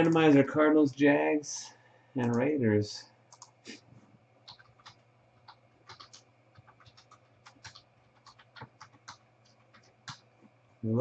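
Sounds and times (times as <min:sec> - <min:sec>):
faint keyboard typing: 0:00.0 - 0:00.6, 0:02.2 - 0:02.6, 0:03.2 - 0:03.8, 0:04.4 - 0:10.6.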